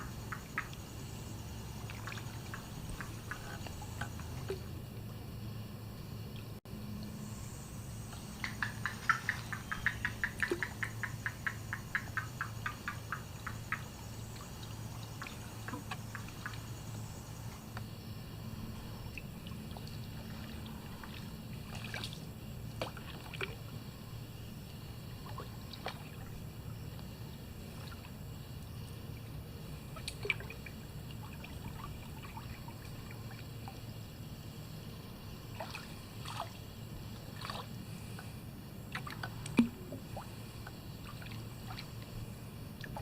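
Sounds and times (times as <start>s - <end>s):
rapid sharp ticks: 0.0s - 1.0s, 8.4s - 14.5s
small water splashes: 0.0s - 4.7s, 19.0s - 24.0s, 25.1s - 28.4s, 29.8s - 33.9s, 35.4s - 43.0s
water trickling and dripping: 0.0s - 5.1s, 8.1s - 17.9s, 30.0s - 34.0s
kayak paddle dipping: 0.0s - 5.2s, 8.2s - 17.8s, 19.1s - 28.8s, 35.2s - 43.0s.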